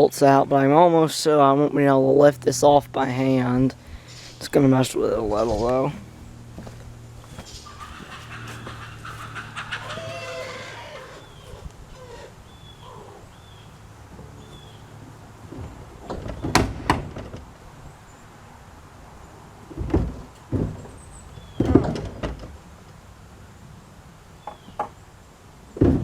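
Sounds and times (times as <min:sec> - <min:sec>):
low steady hum: 0:01.5 - 0:16.0.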